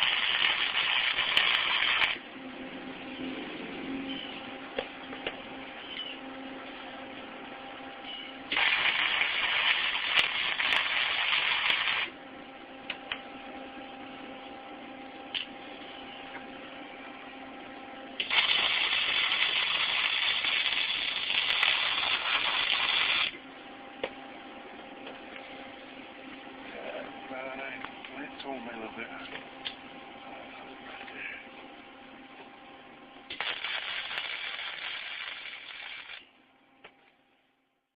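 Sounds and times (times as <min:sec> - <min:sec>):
welder arc crackling hiss: 0:00.0 - 0:02.2, 0:08.5 - 0:12.2, 0:18.2 - 0:23.4, 0:33.3 - 0:36.3
steady hum: 0:00.0 - 0:37.9.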